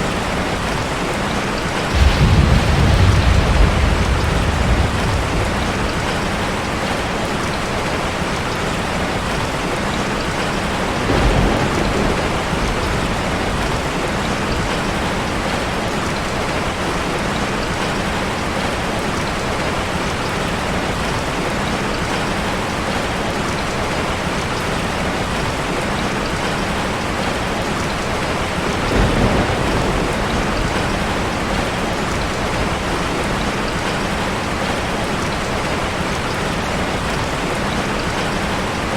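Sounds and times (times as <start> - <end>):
heavy rain on a car: 0.0 - 38.9
low roll of thunder: 1.9 - 7.9, 10.9 - 15.7, 28.5 - 33.9.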